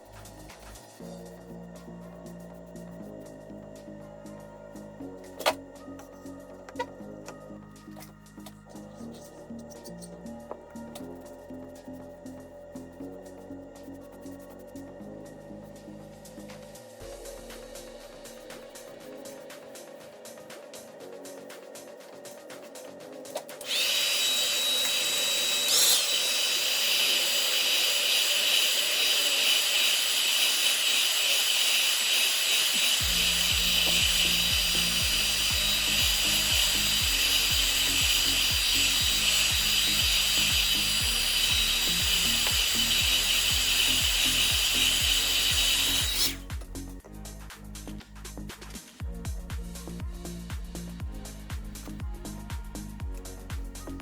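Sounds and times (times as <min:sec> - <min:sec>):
background music with beat: 0:00.0 - 0:26.2, 0:32.7 - 0:54.0
power tool motor whining: 0:23.4 - 0:46.5.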